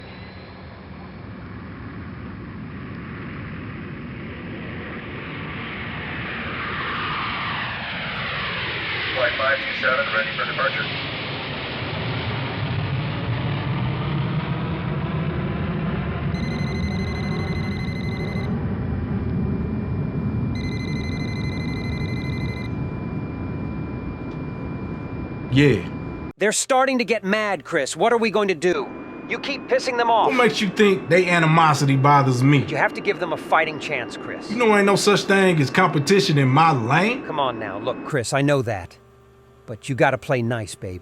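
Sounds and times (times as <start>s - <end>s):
jet engine rumble and hiss: 0.0s - 26.4s, 27.7s - 41.0s
buzzing electronic alarm tone: 16.3s - 26.3s, 28.1s - 41.0s.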